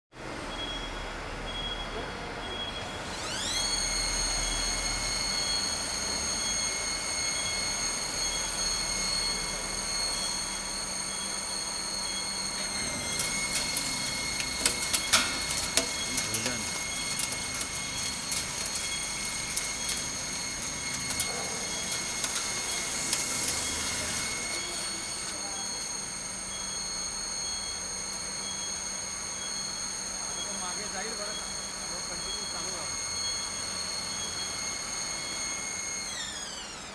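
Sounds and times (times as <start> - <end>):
machine running noise: 2.5 - 36.9
drilling machine high whine: 2.6 - 36.9
sharp clicks and crackles: 12.6 - 24.8.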